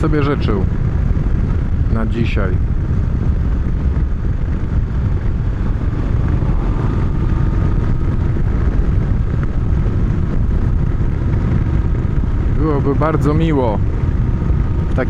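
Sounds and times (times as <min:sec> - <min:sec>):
motorcycle engine cruising: 0:00.0 - 0:15.0
wind rumble on microphone: 0:00.0 - 0:15.0.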